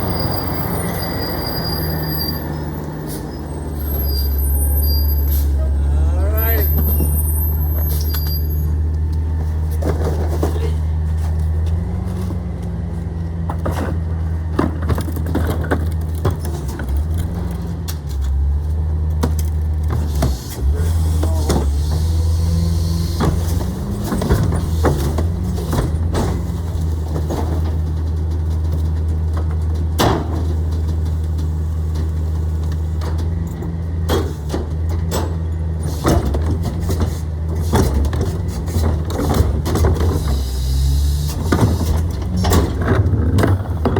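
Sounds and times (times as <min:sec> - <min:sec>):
garbage truck diesel engine: 0:00.0 - 0:43.9
clanks and knocks: 0:13.4 - 0:18.4, 0:23.2 - 0:40.4.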